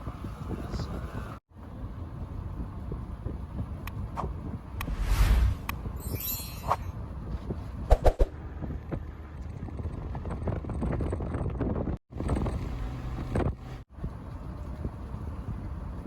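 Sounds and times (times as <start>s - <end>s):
wind buffeting microphone: 7.0s - 16.0s.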